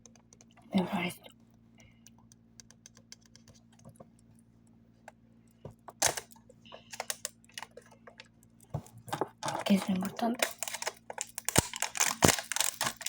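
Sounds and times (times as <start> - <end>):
plastic wrapper crinkling: 9.6 - 13.0.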